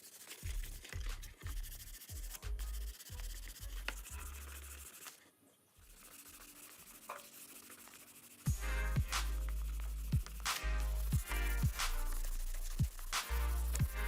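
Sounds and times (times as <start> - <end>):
sandpaper rubbing: 0.0 - 14.0
low background music: 0.4 - 5.0, 8.5 - 14.0.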